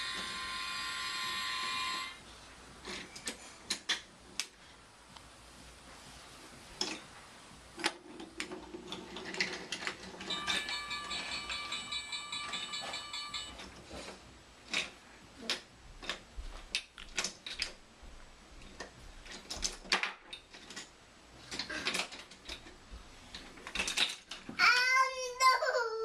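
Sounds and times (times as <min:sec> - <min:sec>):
plastic toy clicks and knocks: 0:02.8 - 0:04.5, 0:21.5 - 0:22.7, 0:23.6 - 0:24.6.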